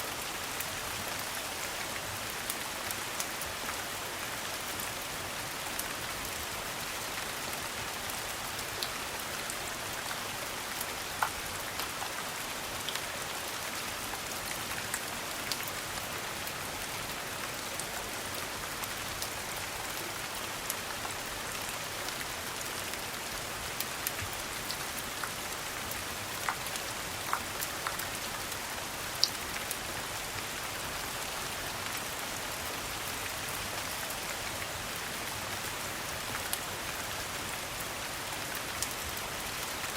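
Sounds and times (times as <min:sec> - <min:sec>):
rain falling: 0:00.0 - 0:39.9
water drips and ticks: 0:10.8 - 0:13.1, 0:23.7 - 0:30.5.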